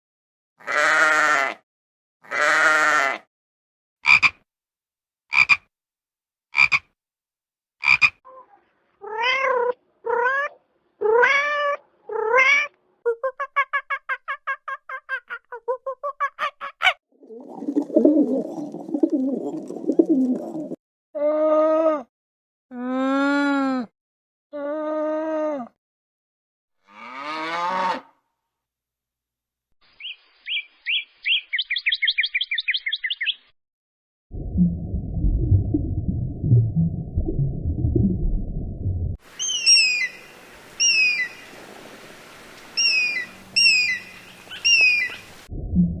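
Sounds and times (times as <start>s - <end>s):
meow-like calls: 8.3s - 12.7s
animal calls: 39.4s - 40.2s, 42.8s - 45.5s.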